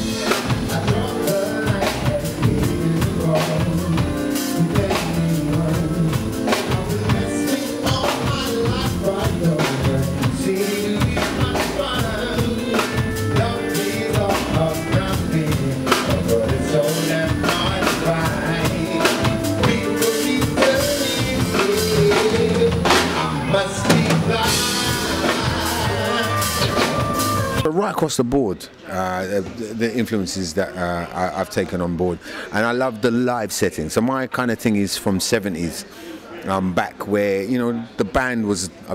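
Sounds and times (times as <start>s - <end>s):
person singing: 0.0s - 27.6s
drum kit beat: 0.0s - 27.7s
guitar: 0.0s - 27.7s
bass: 0.0s - 27.8s.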